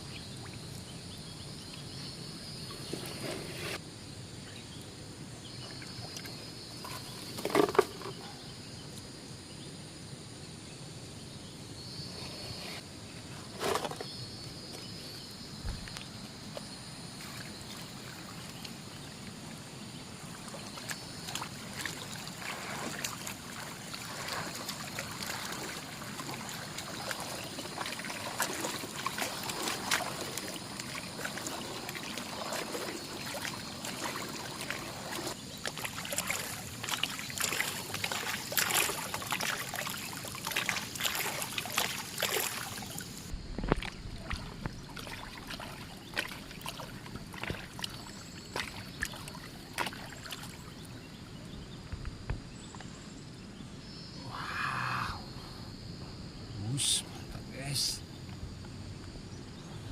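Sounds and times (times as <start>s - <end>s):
water splashing in gold pan: 20.5s - 50.8s.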